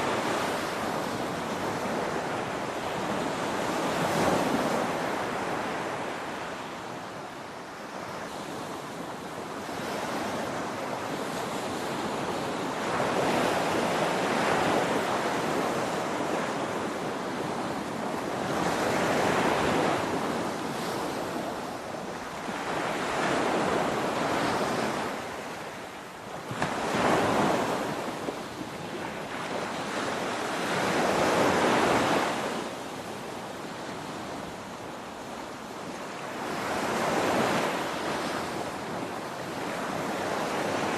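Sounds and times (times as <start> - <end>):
ocean waves breaking on shore: 0.0 - 40.9.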